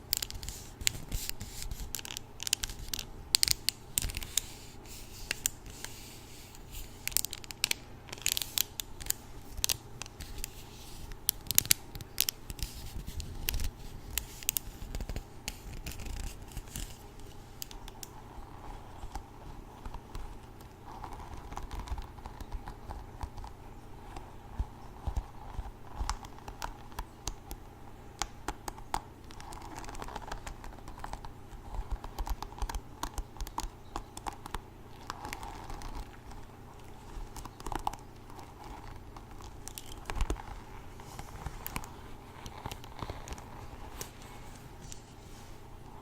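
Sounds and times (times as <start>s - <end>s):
hairbrush bristles scratching: 0.0s - 18.7s, 38.2s - 46.0s.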